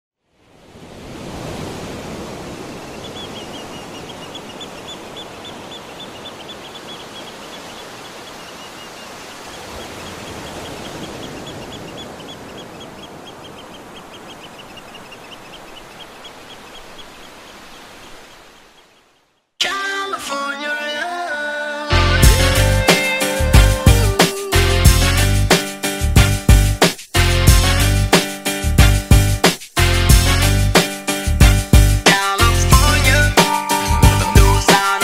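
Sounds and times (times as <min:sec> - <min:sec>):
bird chirping: 0:02.6 - 0:19.5.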